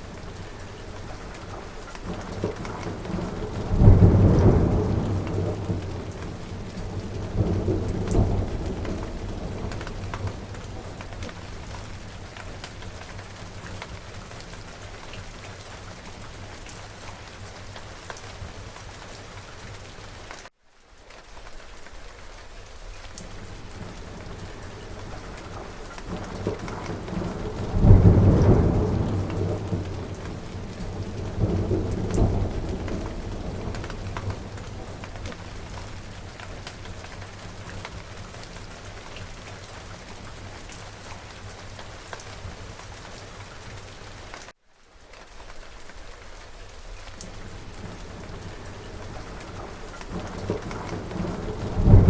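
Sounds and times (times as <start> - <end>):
thunder rumbling: 0.0 - 16.5, 23.3 - 40.5, 47.2 - 52.0
steady rain: 0.0 - 52.0.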